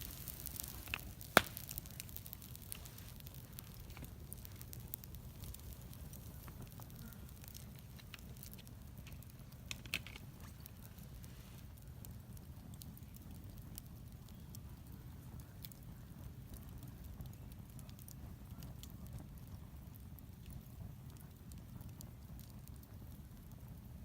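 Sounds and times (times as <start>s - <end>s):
fire crackling and popping: 0.0s - 24.0s
low fire rumble: 0.0s - 24.0s.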